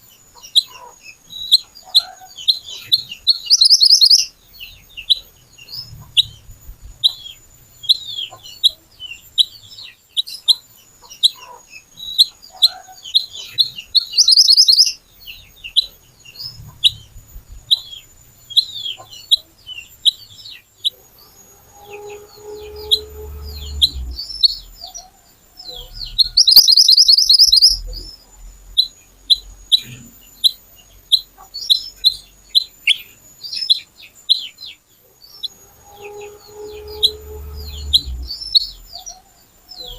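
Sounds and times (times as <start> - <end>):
bird chirping and trilling: 0.4 - 39.9
low rumble with hum: 4.3 - 9.8, 15.0 - 32.8, 35.0 - 39.9.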